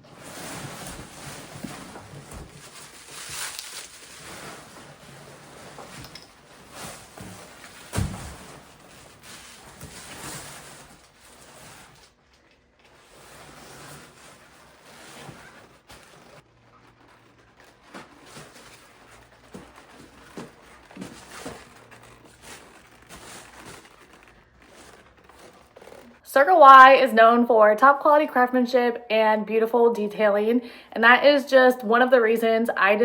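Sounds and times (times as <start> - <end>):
package rustling: 0.8 - 26.2.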